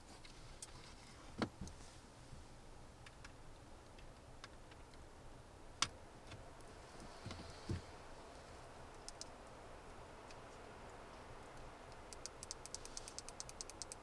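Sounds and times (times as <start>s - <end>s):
sharp clicks and knocks: 11.9s - 14.0s.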